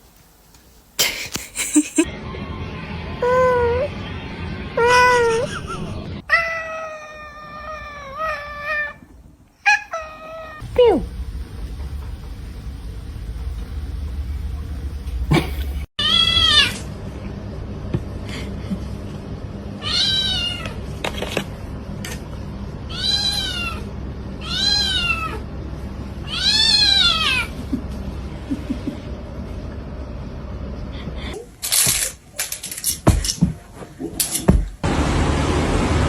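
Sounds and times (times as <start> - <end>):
cat meowing: 4.8 - 10.6, 16.0 - 16.8, 19.8 - 20.8, 22.9 - 23.8, 24.4 - 25.4, 26.3 - 27.5
steady low hum: 10.6 - 15.9.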